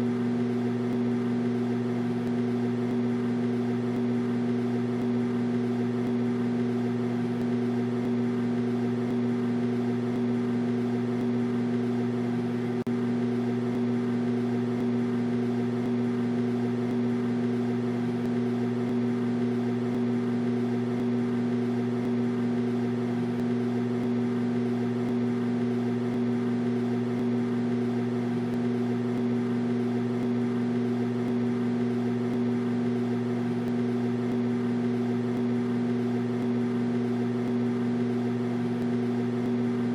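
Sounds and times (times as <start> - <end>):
microwave oven humming: 0.0 - 39.9.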